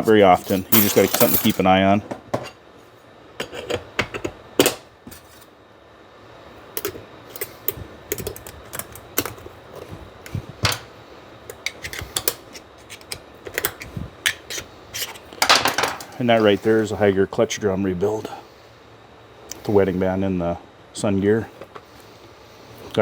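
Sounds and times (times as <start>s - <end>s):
metal parts clicking and clinking: 0.5s - 1.6s.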